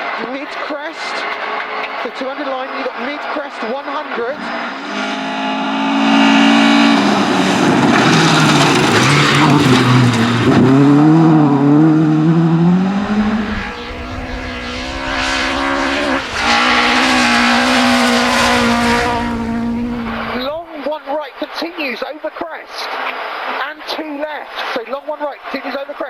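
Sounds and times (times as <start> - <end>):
rally car engine revving: 0.0 - 20.6.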